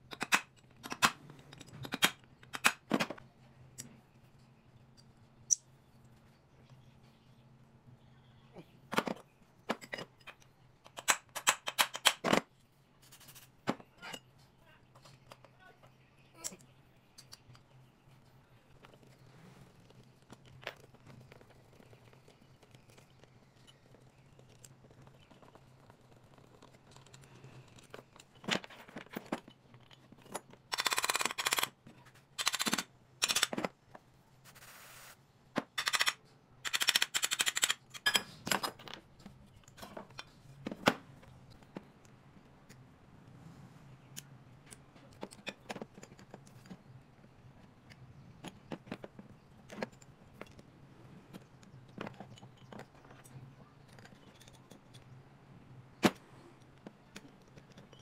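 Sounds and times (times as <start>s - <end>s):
metal tools clicking and knocking: 0.0s - 3.2s, 8.9s - 12.4s, 32.4s - 33.7s, 35.6s - 40.4s, 51.3s - 55.2s
faint low hum: 0.0s - 11.4s.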